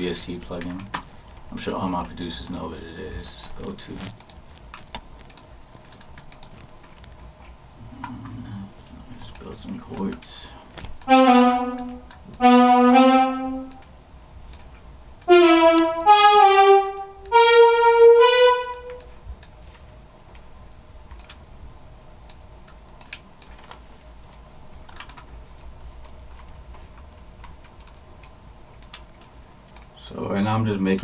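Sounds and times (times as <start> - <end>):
faint clicks: 4.0 - 8.4, 9.1 - 11.1
brass-like synthesizer notes: 11.1 - 13.8, 15.3 - 19.1.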